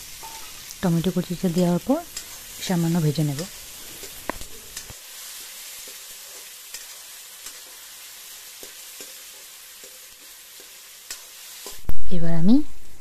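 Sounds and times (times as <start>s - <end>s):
vegetables sizzling in hot oil: 0.0s - 13.0s
metal spatula scraping a pan: 0.2s - 0.7s.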